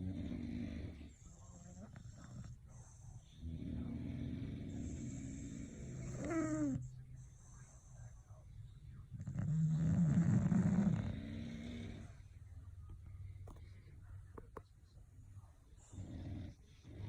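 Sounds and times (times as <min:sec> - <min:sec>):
dogs snoring: 0:00.0 - 0:08.3, 0:09.0 - 0:12.3, 0:15.7 - 0:17.0.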